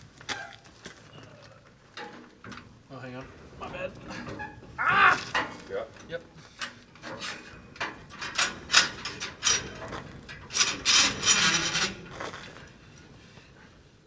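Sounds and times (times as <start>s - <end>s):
metal clicking and rattling: 2.0s - 13.8s.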